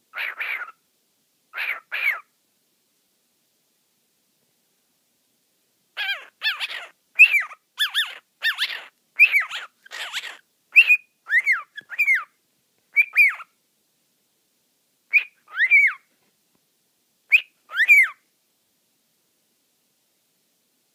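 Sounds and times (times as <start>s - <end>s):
cockatiel whistling and chirping: 0.2s - 0.8s, 1.6s - 2.2s, 6.0s - 13.5s, 15.1s - 16.1s, 17.3s - 18.2s.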